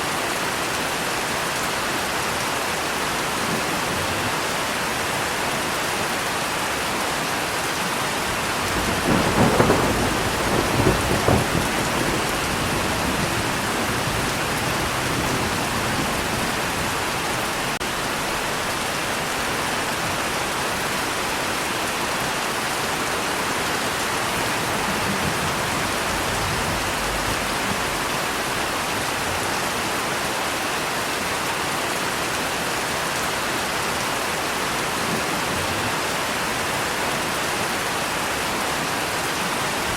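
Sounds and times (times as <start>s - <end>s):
heavy rain falling: 0.0s - 39.9s
thunder crack and rumble: 8.3s - 18.4s, 24.1s - 29.6s.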